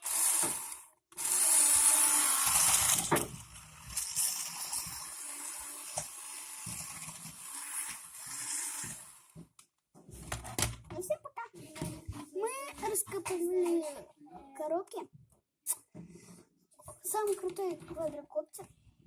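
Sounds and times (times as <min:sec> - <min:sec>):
toy truck motor whirring: 0:00.0 - 0:09.4.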